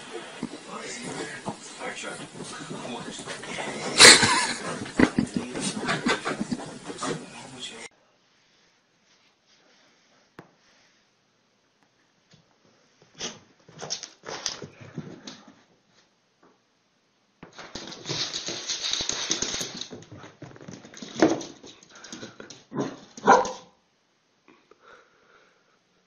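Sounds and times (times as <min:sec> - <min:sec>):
noisy sound: 0:00.0 - 0:07.9
dog barking: 0:22.8 - 0:23.8.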